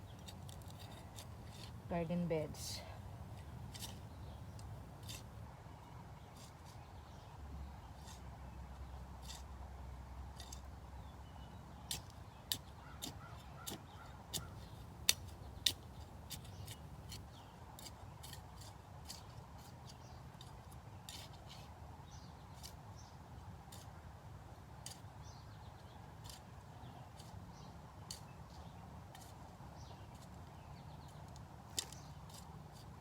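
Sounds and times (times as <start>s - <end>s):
outdoor background noise: 0.0s - 33.0s.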